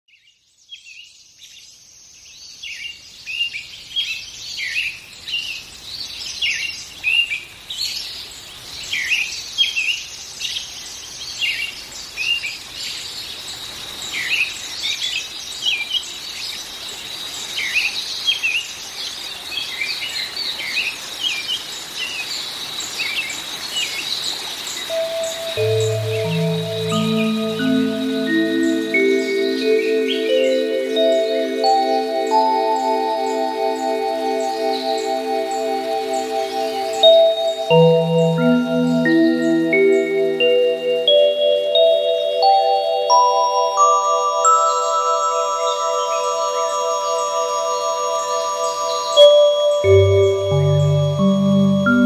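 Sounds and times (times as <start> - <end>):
small birds chirping and twittering: 0.1 - 52.0
steady thin high tone: 24.9 - 52.0.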